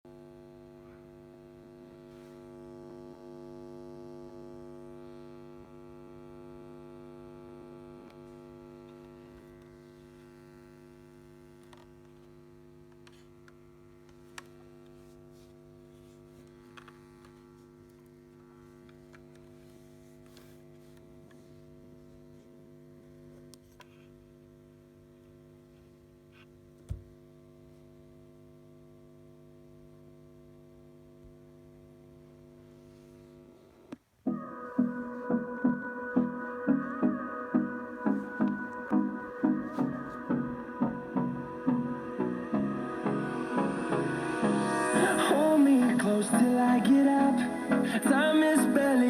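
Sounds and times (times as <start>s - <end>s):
electrical mains hum: 0.1s - 49.0s.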